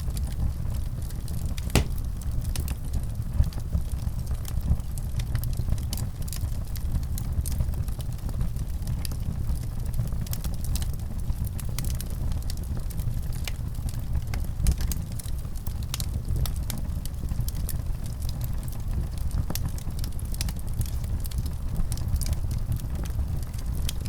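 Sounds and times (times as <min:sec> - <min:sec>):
low rumble of fire: 0:00.0 - 0:24.0
fireplace fire crackling: 0:01.6 - 0:02.3.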